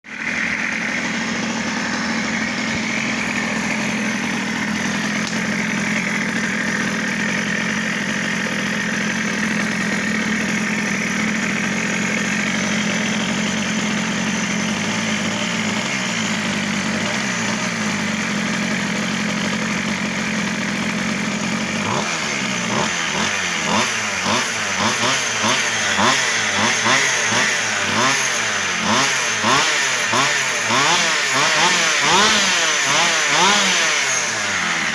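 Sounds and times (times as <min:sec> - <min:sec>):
small petrol engine idling and revving: 0:00.0 - 0:34.9.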